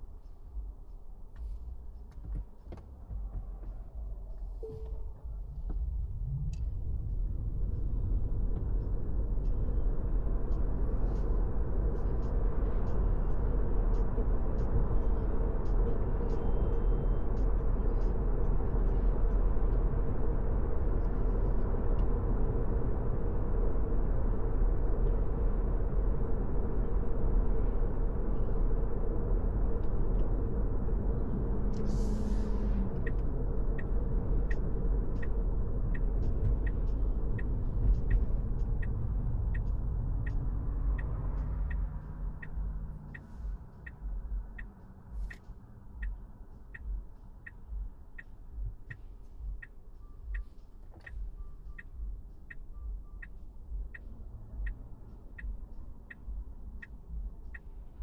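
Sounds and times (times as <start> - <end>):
car cabin road rumble: 0.0 - 58.0
turn signal ticking: 8.1 - 22.2, 27.4 - 58.0.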